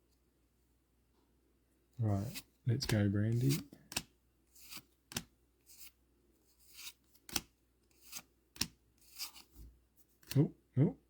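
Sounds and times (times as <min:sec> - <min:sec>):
cards rustling and flicking: 0:02.2 - 0:10.4.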